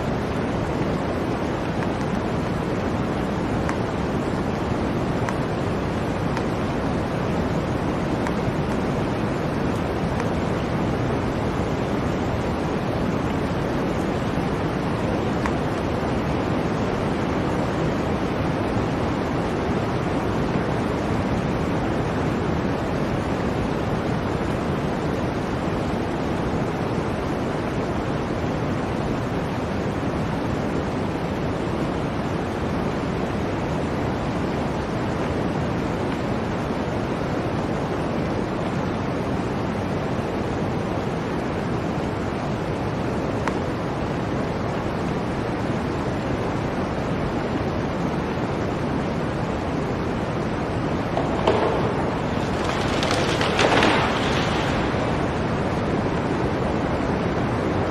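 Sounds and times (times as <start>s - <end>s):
blizzard wind blowing: 0.0s - 57.9s.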